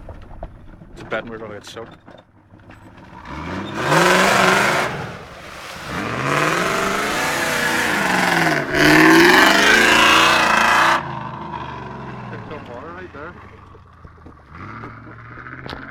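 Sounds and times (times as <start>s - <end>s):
car engine revving hard: 3.1s - 13.7s.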